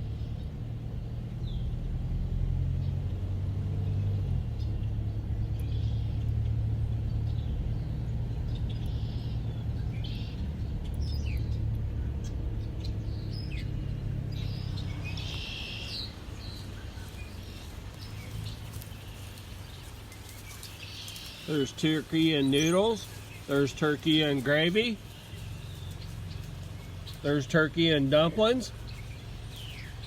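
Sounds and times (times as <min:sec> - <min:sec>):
birds chirping: 0:00.0 - 0:30.0
low engine hum: 0:00.0 - 0:30.0
short falling bird calls: 0:12.2 - 0:27.4.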